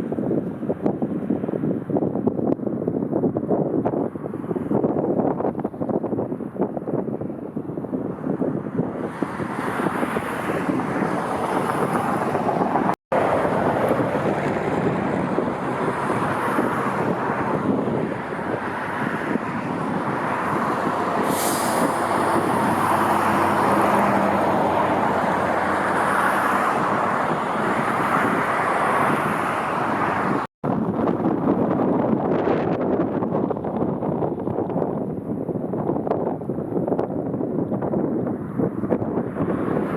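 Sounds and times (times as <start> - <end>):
jet airliner engines roaring: 9.0 - 30.5.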